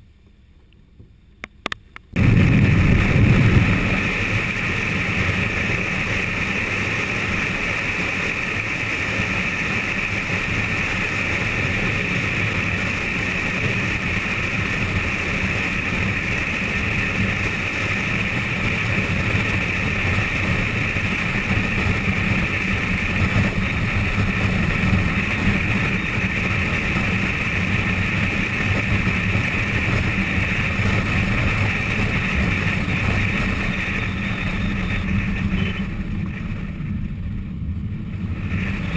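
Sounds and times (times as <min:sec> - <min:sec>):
road and engine noise: 0:00.0 - 0:38.9
wind noise: 0:01.0 - 0:38.9.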